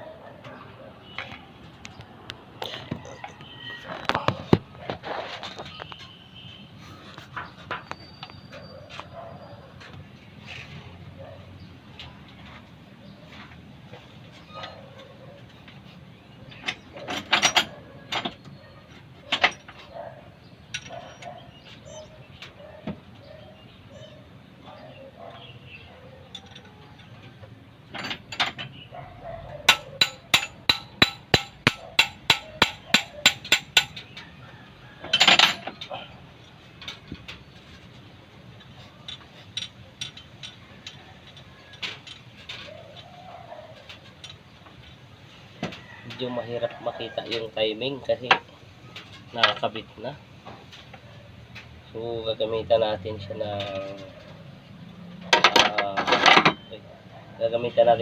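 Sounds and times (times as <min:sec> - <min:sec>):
tools knocking on engine block: 0:29.6 - 0:34.0
pigeon cooing: 0:42.6 - 0:43.9.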